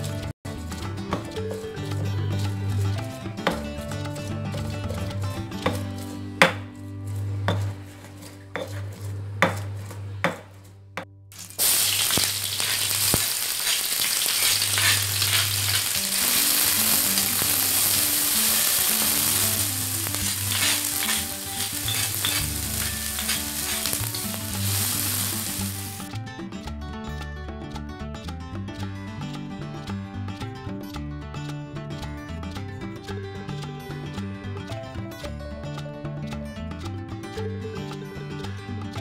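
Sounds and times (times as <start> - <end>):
spices ground in stone mortar: 4.4 - 10.7, 11.4 - 26.1
metal spatula stirring in wok: 7.2 - 9.7, 11.4 - 26.1
food sizzling in oil: 11.4 - 26.1.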